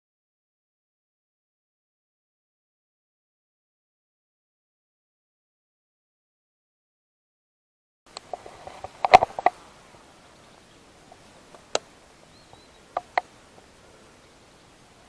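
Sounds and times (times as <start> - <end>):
sharp clicks and knocks: 8.1 - 9.6, 13.0 - 13.3.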